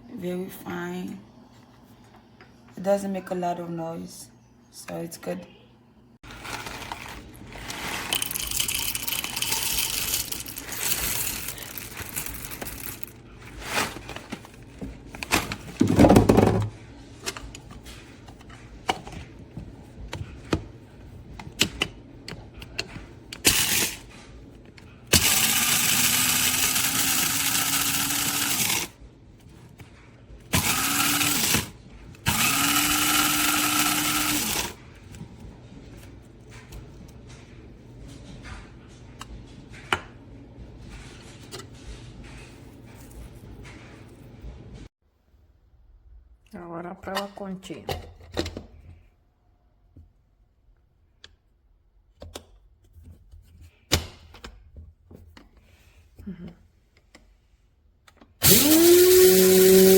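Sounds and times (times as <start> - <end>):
electric coffee grinder whirring: 6.2 - 13.1, 23.4 - 24.0, 25.1 - 28.9, 30.5 - 34.8, 58.4 - 59.9.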